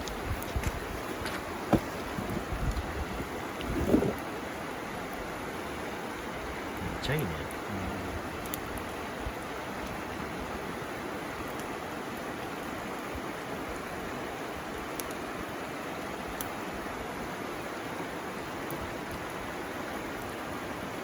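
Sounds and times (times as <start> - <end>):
campfire pops: 0.0 - 4.3, 8.3 - 10.1, 11.3 - 11.8, 14.9 - 15.2
river flowing: 0.0 - 21.0.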